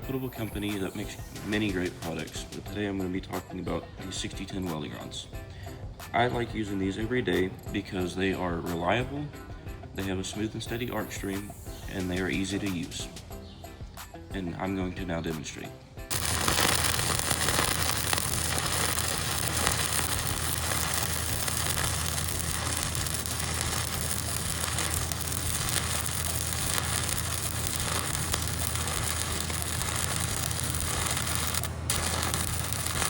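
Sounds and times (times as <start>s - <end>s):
welding arc crackling and sizzling: 0.0s - 2.4s, 16.1s - 33.0s
low hum: 16.1s - 33.0s.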